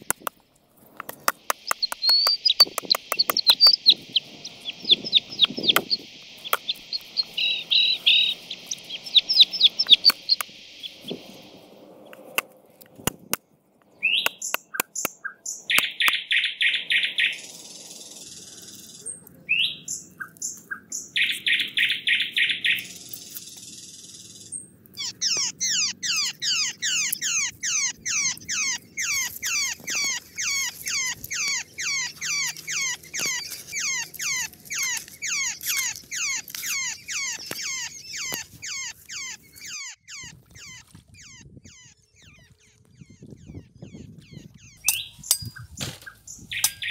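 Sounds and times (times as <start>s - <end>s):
sharp clicks: 0.0s - 3.9s, 5.2s - 7.2s, 9.8s - 10.6s, 14.2s - 16.2s
birds chirping: 0.0s - 46.9s.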